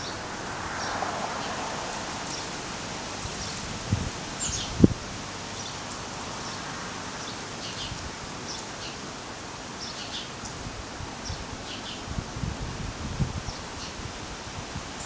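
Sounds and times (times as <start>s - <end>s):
steady rustling hiss: 0.0s - 15.0s
small birds chirping: 4.4s - 4.8s, 9.8s - 10.6s.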